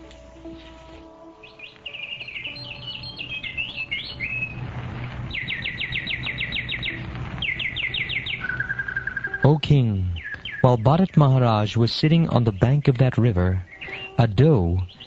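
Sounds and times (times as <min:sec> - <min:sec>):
birds chirping: 0:00.0 - 0:15.0
bird trill of falling notes: 0:01.4 - 0:11.2.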